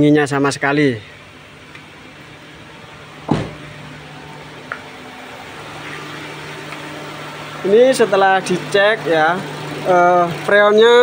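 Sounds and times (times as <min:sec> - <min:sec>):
car engine idling: 0:00.4 - 0:11.0
car door thudding shut: 0:03.2 - 0:03.8
small click: 0:06.7 - 0:06.9.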